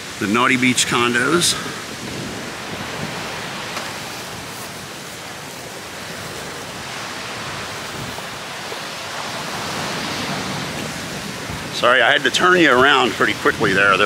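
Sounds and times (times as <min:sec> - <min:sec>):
surf breaking on beach: 0:00.0 - 0:14.0
wind blowing over microphone: 0:00.0 - 0:14.0.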